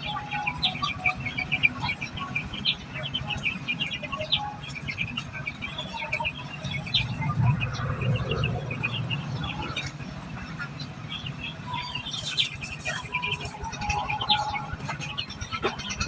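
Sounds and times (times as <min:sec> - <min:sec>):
finches chirping: 0:00.0 - 0:16.0
low rumble: 0:06.7 - 0:10.7.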